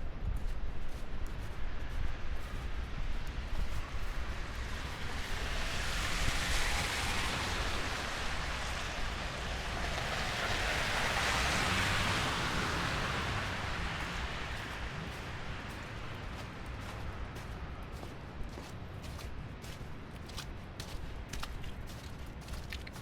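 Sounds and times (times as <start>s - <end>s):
rushing hiss of snowstorm: 1.4s - 17.3s.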